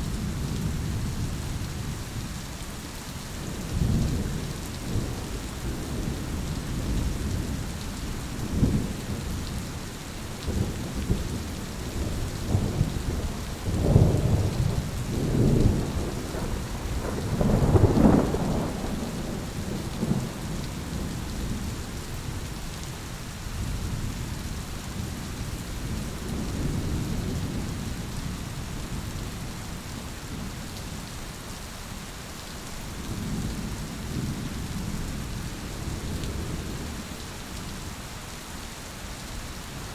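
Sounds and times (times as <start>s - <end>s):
rain falling: 0.0s - 39.9s
rolling thunder: 10.5s - 21.8s.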